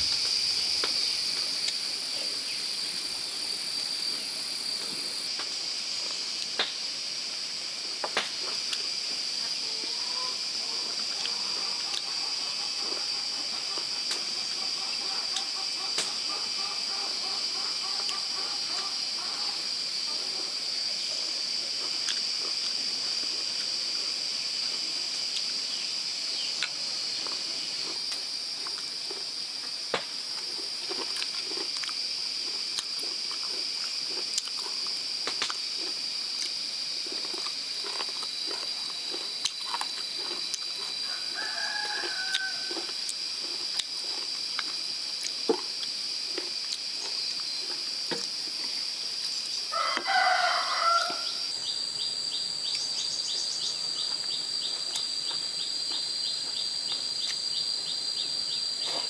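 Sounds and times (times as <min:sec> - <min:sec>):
high-pitched insect drone: 0:08.8 - 0:21.9, 0:36.8 - 0:45.2, 0:46.1 - 0:59.0.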